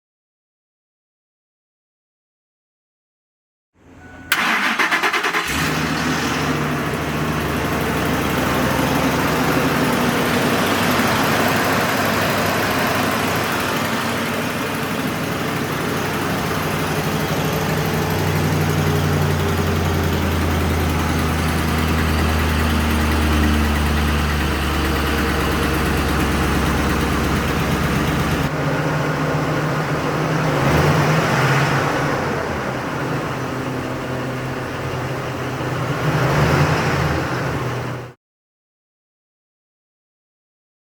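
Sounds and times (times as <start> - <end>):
truck engine starting and idling: 3.8 - 38.2.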